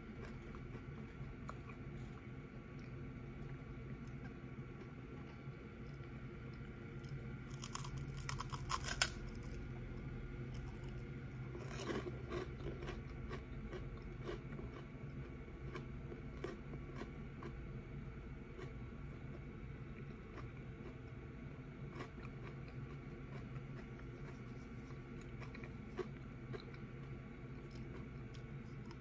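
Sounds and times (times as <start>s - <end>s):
crunching crisp snack: 4.0s - 9.7s, 10.5s - 17.6s, 21.8s - 29.0s.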